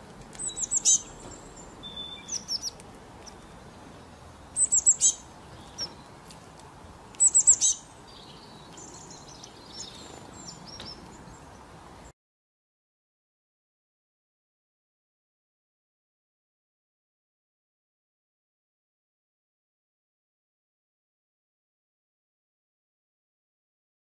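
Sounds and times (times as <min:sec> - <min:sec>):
songbird chirping: 0:00.1 - 0:12.1.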